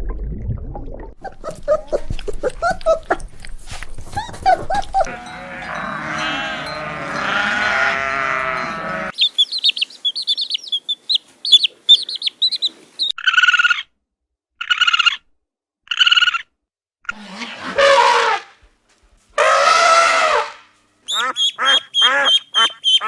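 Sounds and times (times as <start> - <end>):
overlapping animal calls: 1.2 - 3.3, 4.1 - 13.9, 19.4 - 23.0
rapid high bird chirping: 9.1 - 13.8, 21.1 - 23.0.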